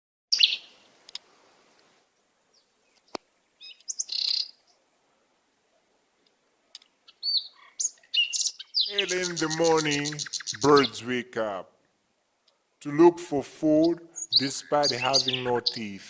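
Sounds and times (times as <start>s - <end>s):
birds chirping: 0.3s - 0.9s, 2.2s - 4.8s, 6.6s - 11.6s, 12.5s - 16.0s.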